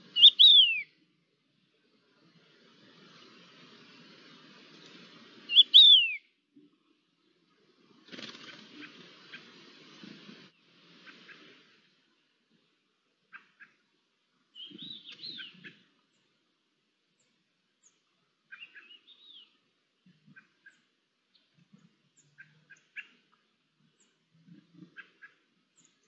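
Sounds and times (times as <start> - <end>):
small birds chirping: 0.0 - 1.0, 1.6 - 6.3, 13.2 - 16.5, 17.1 - 26.0.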